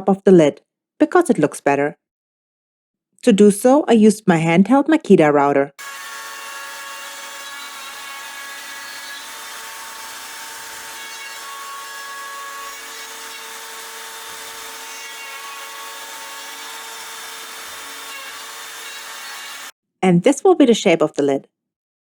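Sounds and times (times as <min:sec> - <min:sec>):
router bit cutting wood: 0:05.8 - 0:19.7
router motor whine: 0:05.8 - 0:19.7.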